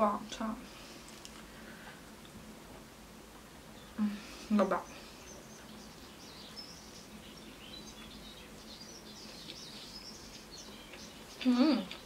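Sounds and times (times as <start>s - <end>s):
low steady hum: 0.0s - 12.0s
birds chirping: 3.6s - 12.0s.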